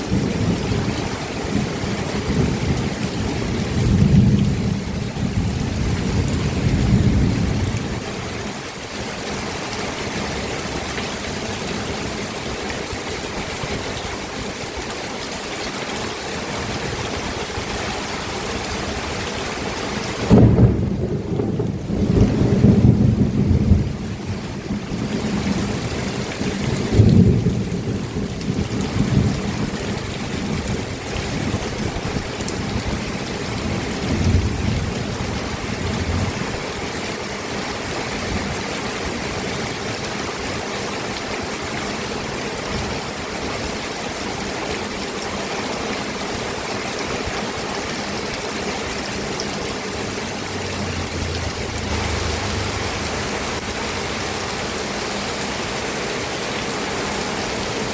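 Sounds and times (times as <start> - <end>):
steady rain falling: 0.0 - 57.9
low rumbles of thunder: 0.1 - 8.1, 20.2 - 33.0, 33.6 - 36.8, 50.0 - 54.6.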